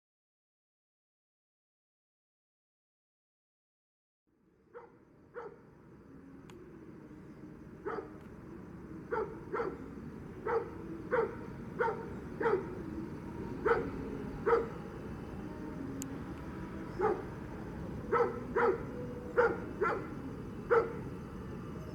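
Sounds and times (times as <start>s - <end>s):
dog barking: 4.7s - 5.6s, 7.8s - 8.2s, 9.1s - 12.8s, 13.6s - 14.8s, 16.9s - 17.4s, 18.1s - 21.1s.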